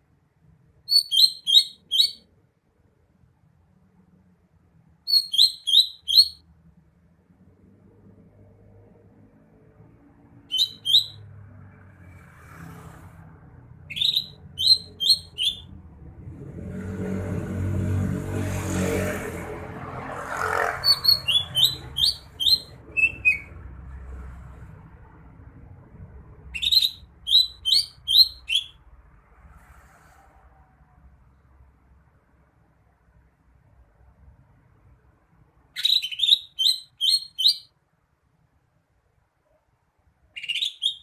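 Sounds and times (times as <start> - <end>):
bird singing high sharp notes: 0.9 - 2.2, 5.1 - 6.4, 10.5 - 11.2, 13.9 - 15.7, 20.8 - 23.5, 26.5 - 28.8, 35.8 - 37.7
vehicle passing: 7.3 - 35.7.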